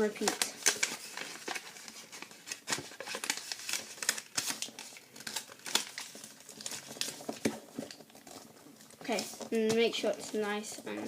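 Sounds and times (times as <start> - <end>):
paper crinkling and rustling: 0.0 - 11.0.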